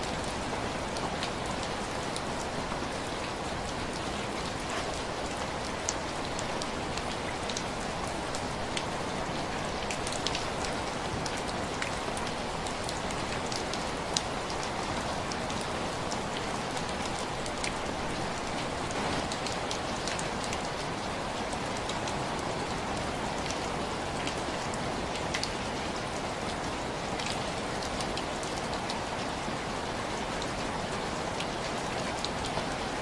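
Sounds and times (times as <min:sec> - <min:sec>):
heavy rain hiss: 0:00.0 - 0:25.0.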